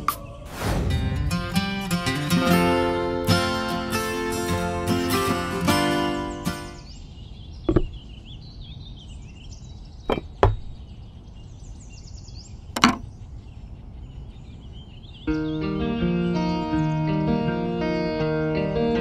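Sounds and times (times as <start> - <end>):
clay pieces knocking on brick model: 7.7 - 8.0, 10.1 - 10.8, 12.8 - 13.0.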